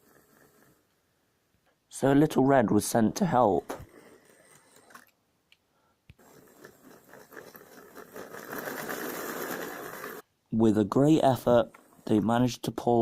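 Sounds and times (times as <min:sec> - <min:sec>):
model train running on track: 0:06.2 - 0:10.2.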